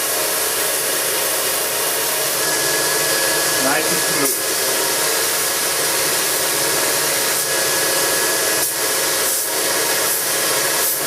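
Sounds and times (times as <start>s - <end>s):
belt grinder grinding steel: 2.2s - 11.0s.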